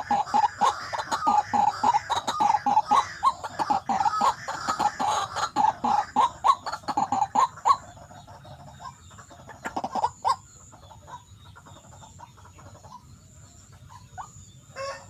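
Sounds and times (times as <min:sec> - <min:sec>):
waterhen croaking call: 0:00.0 - 0:08.0.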